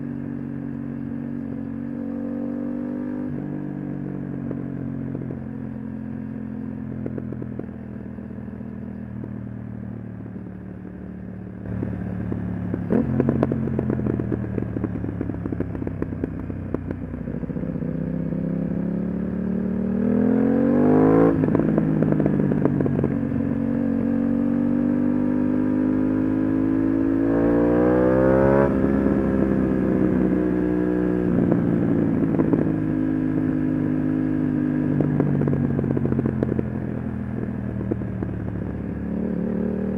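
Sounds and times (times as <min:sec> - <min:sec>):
exhaust crackles and pops: 0:11.6 - 0:17.2
motorcycle engine revving: 0:11.6 - 0:39.9.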